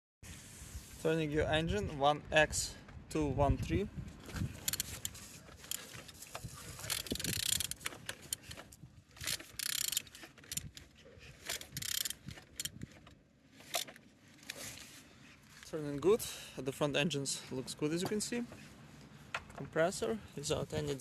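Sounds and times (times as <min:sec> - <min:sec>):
engine turned over by hand: 0:04.2 - 0:14.1.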